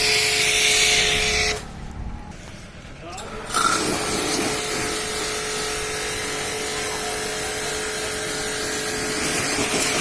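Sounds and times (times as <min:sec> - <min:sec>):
pressure washer spray hiss: 0:00.0 - 0:01.6, 0:03.6 - 0:10.0
washer motor and pump hum: 0:00.0 - 0:10.0.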